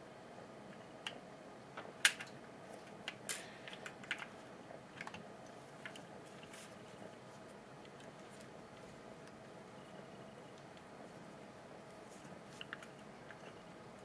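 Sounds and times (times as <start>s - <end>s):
plastic parts clicking and tapping: 3.0s - 4.3s.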